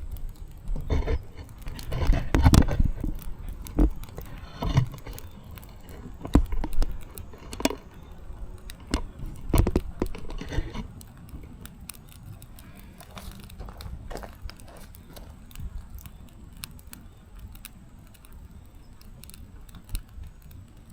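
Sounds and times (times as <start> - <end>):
firewood crackling and popping: 0.0 - 20.9.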